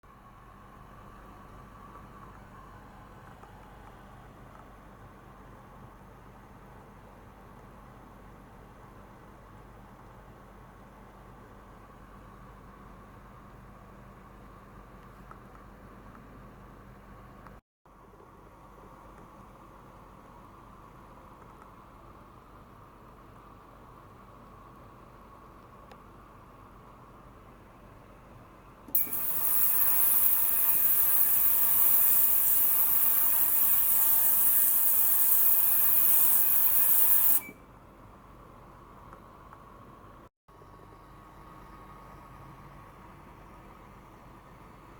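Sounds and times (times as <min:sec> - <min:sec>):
high-pitched hiss from cleaner: 0:29.0 - 0:37.5.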